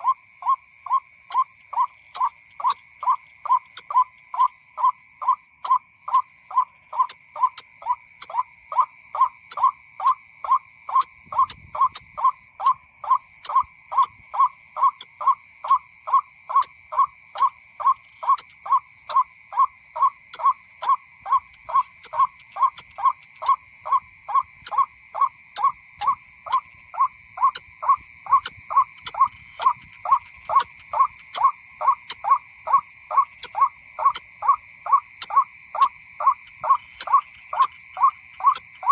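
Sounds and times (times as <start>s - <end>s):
waterhen calling harsh notes: 10.9s - 38.9s.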